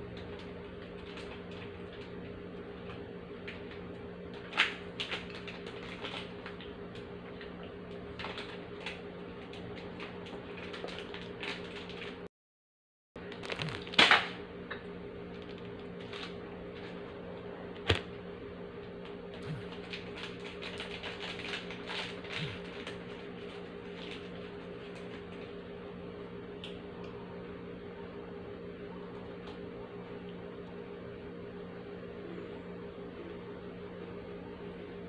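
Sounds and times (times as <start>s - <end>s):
steady hum: 0.0s - 12.2s, 13.2s - 35.0s
biscuits crunching while chewed: 13.2s - 14.3s, 18.9s - 25.6s.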